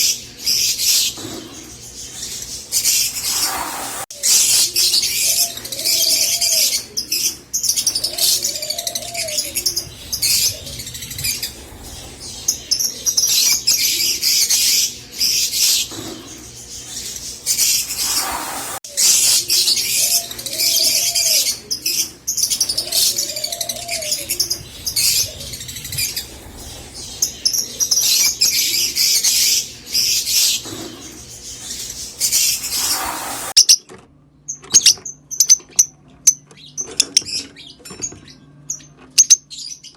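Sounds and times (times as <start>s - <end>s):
lovebirds chattering shrilly: 0.0s - 33.7s
soft low arching bird call: 2.8s - 33.6s.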